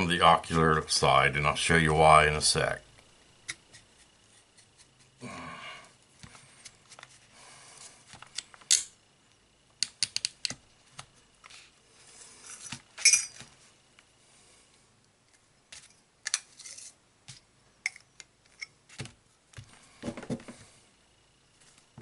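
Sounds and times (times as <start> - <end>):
small metal parts clinking: 12.4 - 13.4.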